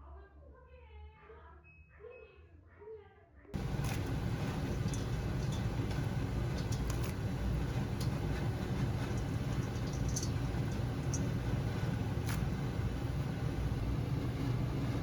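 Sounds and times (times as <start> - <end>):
steady low rumble: 3.6 - 15.0.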